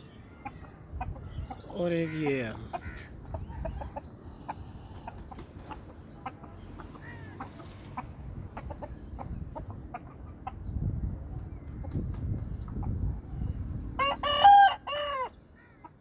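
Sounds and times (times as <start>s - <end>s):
roosters clucking: 0.0s - 16.0s
rooster falling call: 14.0s - 15.3s.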